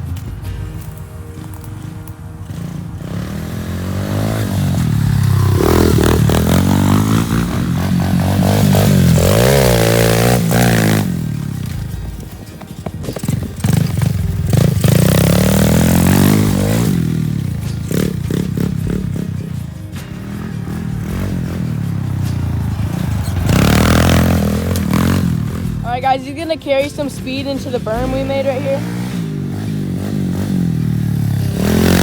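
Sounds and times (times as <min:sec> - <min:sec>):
dirt bike engine revving: 0:01.3 - 0:32.0.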